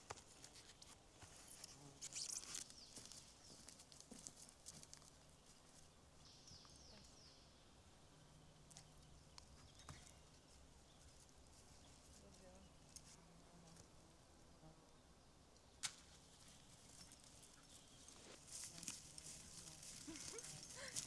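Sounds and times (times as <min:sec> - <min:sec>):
small clicks and rustles: 0:15.8 - 0:21.0.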